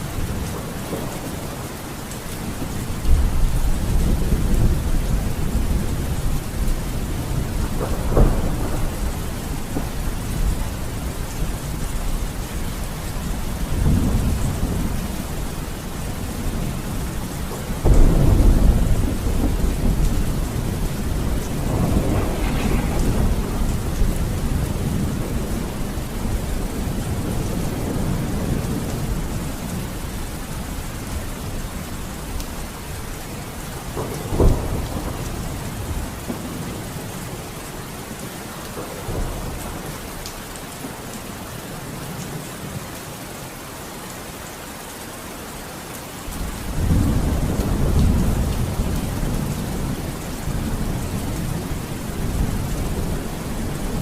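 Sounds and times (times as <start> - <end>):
heavy rain: 0.0 - 54.0
rolling thunder: 0.1 - 37.5, 46.4 - 54.0
sharp thunder crack: 17.8 - 26.4.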